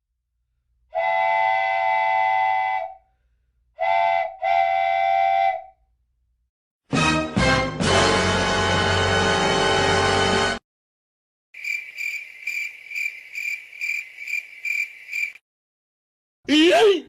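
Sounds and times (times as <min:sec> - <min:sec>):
chord whistle blasts: 0:03.8 - 0:05.7
music: 0:06.9 - 0:10.6.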